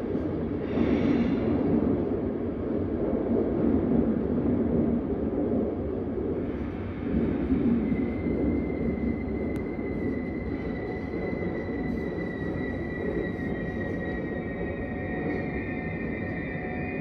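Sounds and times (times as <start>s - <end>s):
train wheels rumbling: 6.6s - 17.0s
thin high whine: 7.6s - 17.0s.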